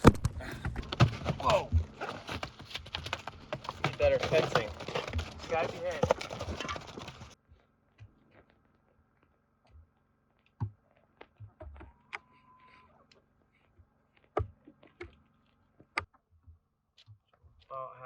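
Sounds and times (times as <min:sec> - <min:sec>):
clicks and knocks of objects: 0:00.0 - 0:07.4.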